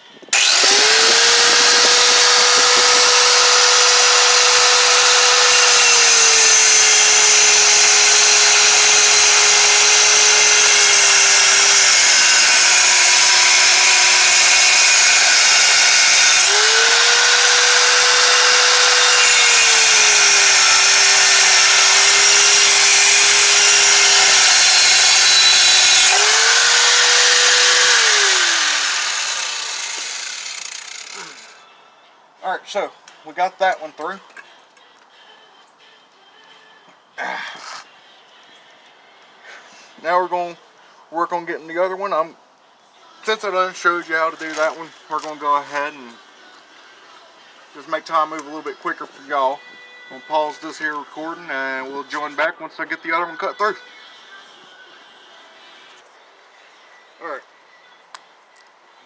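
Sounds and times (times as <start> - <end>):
angle grinder cutting metal: 0.4 - 31.6.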